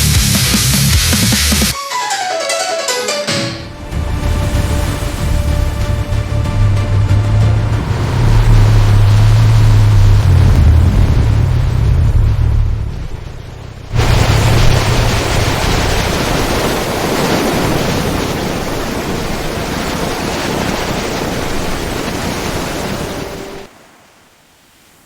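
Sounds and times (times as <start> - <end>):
roar of surf-like water: 3.7 - 25.0
deep rumble: 3.8 - 16.4.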